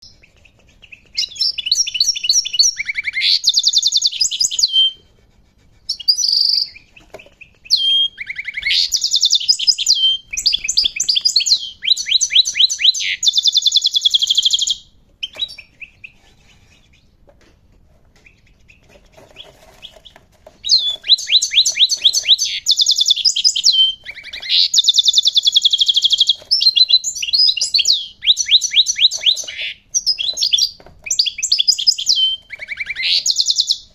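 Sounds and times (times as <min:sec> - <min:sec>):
goldfinch twittering song: 0:19.4 - 0:33.9.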